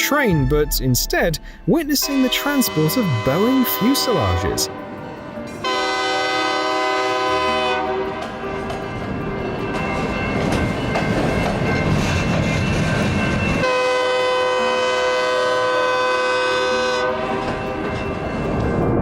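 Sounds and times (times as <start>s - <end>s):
train horn chord: 1.5s - 9.2s, 13.6s - 18.5s
train wheels clattering on rails: 6.8s - 19.0s.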